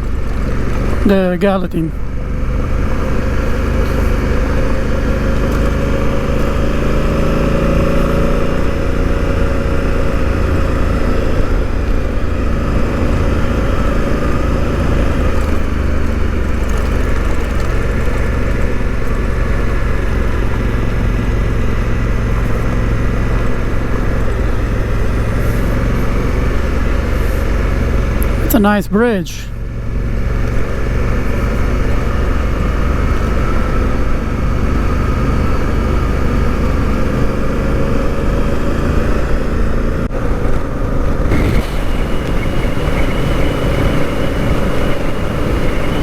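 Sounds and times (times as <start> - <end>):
road noise: 0.0 - 46.0
motorcycle engine cruising: 2.0 - 28.5.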